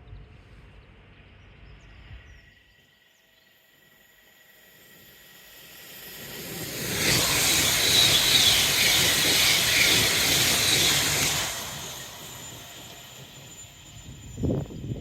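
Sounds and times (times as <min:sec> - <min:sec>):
train wheels rumbling on rail: 0:04.8 - 0:15.0.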